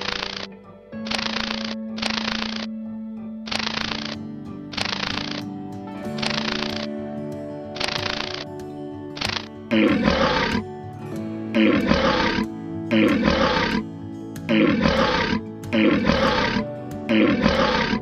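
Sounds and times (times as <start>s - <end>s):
background music with held notes: 0.0s - 18.0s
loud animal roars: 11.6s - 13.8s, 14.5s - 18.0s.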